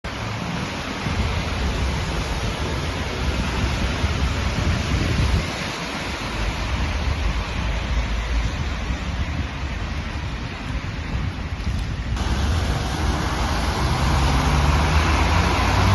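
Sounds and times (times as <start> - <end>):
heavy rain: 0.0 - 15.9
low rumble: 11.2 - 15.9
running water: 12.2 - 15.9.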